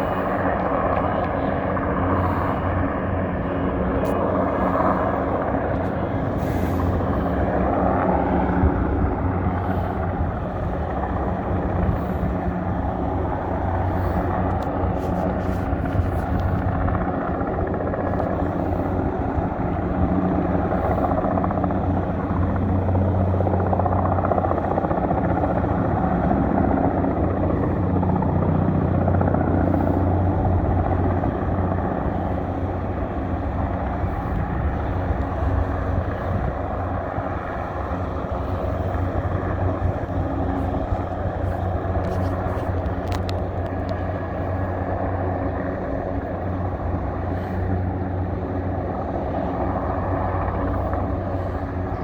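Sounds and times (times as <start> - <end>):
helicopter rotor and turbine drone: 0.0 - 52.0.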